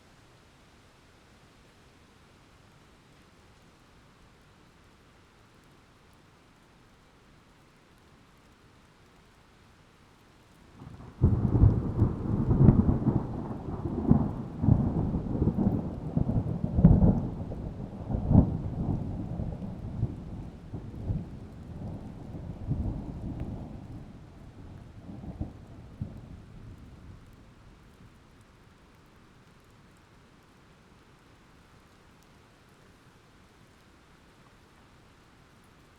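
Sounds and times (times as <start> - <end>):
heavy rain: 10.3 - 33.1.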